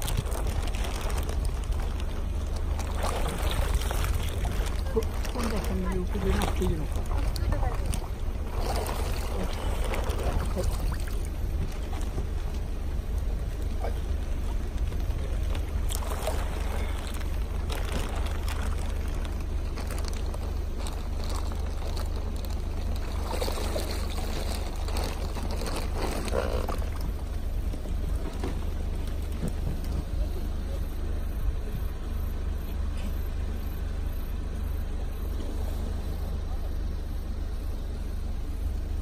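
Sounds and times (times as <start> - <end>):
water splashing in pond: 0.0 - 30.0
steady low rumble: 0.0 - 39.0.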